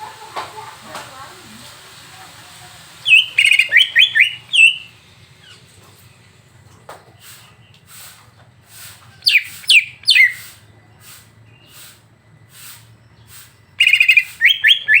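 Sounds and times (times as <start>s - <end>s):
songbird singing: 0.0s - 15.0s
bird rattling trill: 3.0s - 5.7s, 9.2s - 10.6s, 13.8s - 15.0s.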